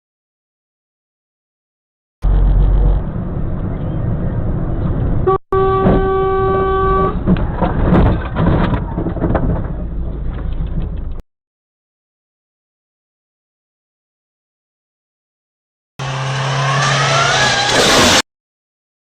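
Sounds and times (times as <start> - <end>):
car rumbling on road: 2.2 - 11.2
car horn blaring: 5.2 - 7.3
collision knocks and crunching: 7.2 - 11.2.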